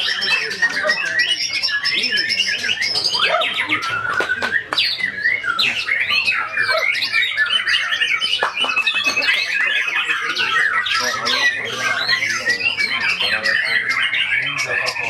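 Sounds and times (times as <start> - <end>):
bird singing varied whistles: 0.0 - 9.3.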